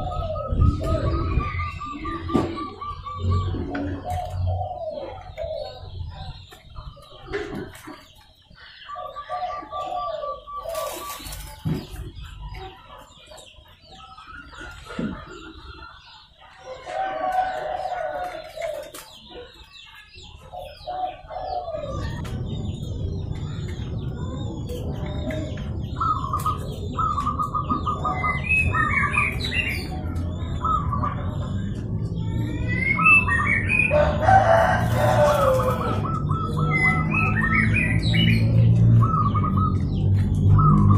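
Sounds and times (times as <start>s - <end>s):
doves cooing: 0.0s - 40.9s
steady low rumble: 21.2s - 40.9s.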